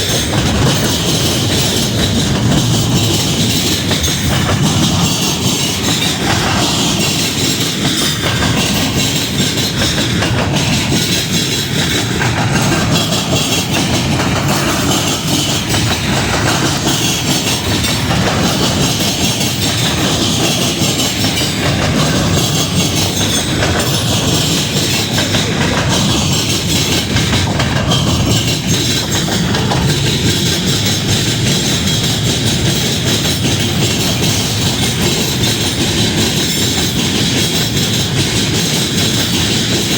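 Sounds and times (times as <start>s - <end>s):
train wheels clacking on rails: 0.0s - 39.9s.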